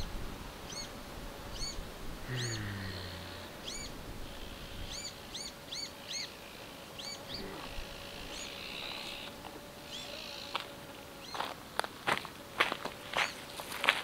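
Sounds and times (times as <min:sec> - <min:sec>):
faint outdoor hiss: 0:00.0 - 0:14.0
bird chirping: 0:03.6 - 0:09.3.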